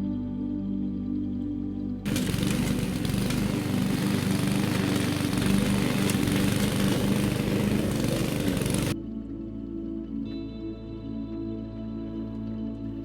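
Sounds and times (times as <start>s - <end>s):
lawn mower engine running: 2.1s - 9.0s.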